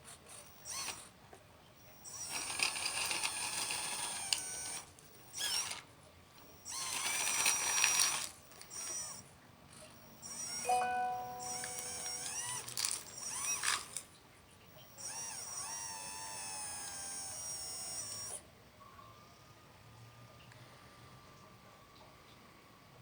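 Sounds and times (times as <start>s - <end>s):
electric motors whining: 0.4s - 1.1s, 1.8s - 5.8s, 6.4s - 9.2s, 9.9s - 14.0s, 14.7s - 18.4s.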